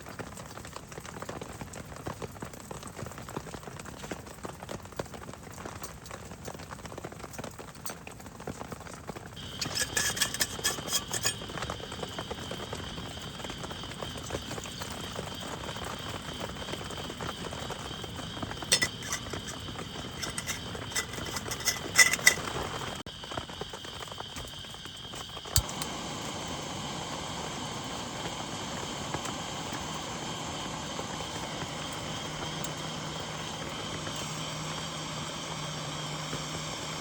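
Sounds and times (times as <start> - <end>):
sharp clicks and clinks: 9.4 - 11.7, 18.6 - 22.7
steady rain hiss: 9.4 - 37.0.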